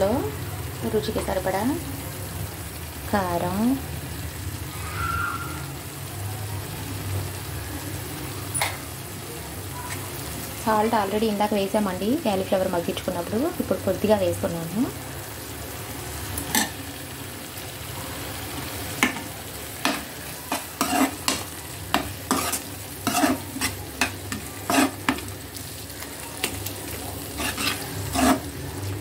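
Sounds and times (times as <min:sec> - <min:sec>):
food sizzling in a pan: 0:00.0 - 0:29.0
steel spoon scraping a pan: 0:19.0 - 0:25.6, 0:26.4 - 0:29.0.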